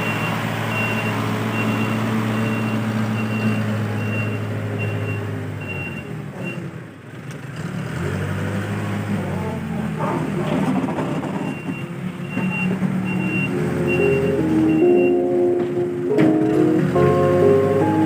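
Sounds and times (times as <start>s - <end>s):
reversing alarm beeping: 0.0s - 6.6s, 11.1s - 15.6s
diesel engine under load: 0.0s - 18.0s.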